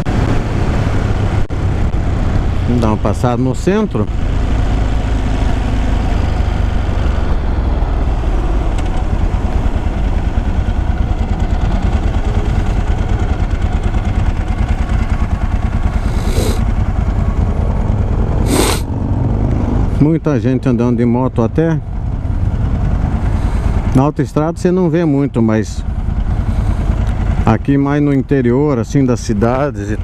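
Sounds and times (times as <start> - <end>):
motorcycle engine running: 0.0 - 30.0
road and wind noise: 0.0 - 30.0
short hiss-like noises: 18.5 - 18.9.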